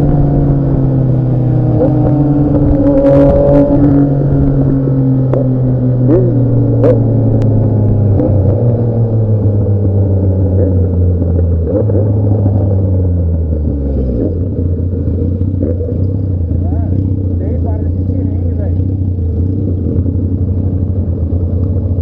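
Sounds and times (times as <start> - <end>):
motorcycle engine under load: 0.0 - 22.0.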